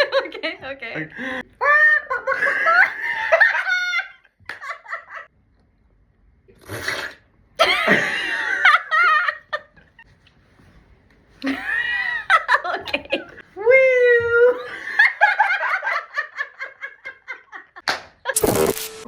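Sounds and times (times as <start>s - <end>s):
people laughing: 0.0s - 5.3s, 7.6s - 10.0s, 11.4s - 13.4s, 14.4s - 17.8s.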